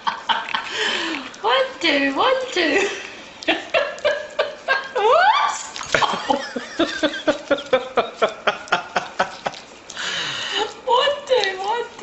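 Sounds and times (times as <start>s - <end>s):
person laughing: 5.9s - 9.6s.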